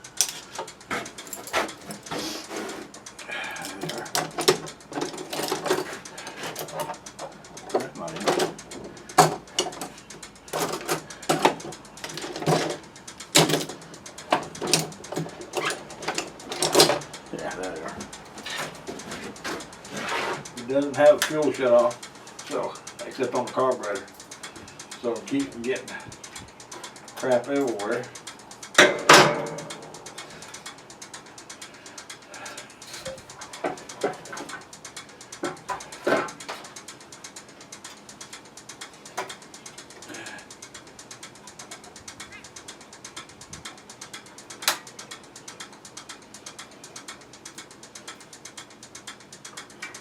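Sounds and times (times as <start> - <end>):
hand tools clicking and scraping: 0.0 - 50.0
loud metal clanks: 28.8 - 30.1.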